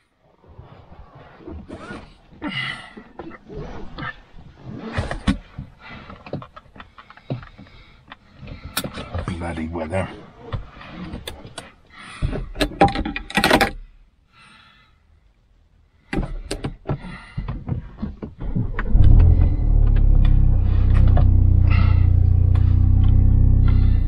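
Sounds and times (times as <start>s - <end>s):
car engine starting and idling: 18.4s - 24.0s.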